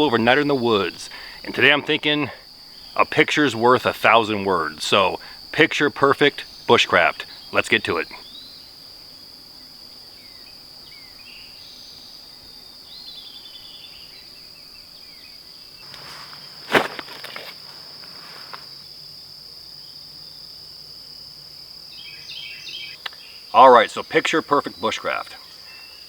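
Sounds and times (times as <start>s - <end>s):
crickets trilling: 0.0s - 26.0s
faint bird chirps: 22.0s - 23.5s.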